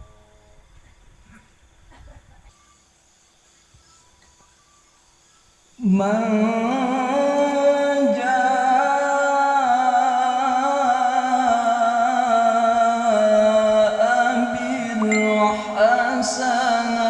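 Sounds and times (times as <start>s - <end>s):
man reciting melodically: 5.8s - 17.0s.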